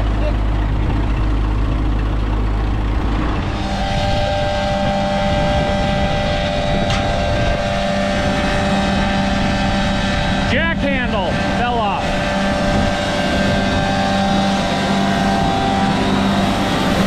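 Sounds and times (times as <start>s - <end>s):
machine motor humming: 5.5s - 17.0s.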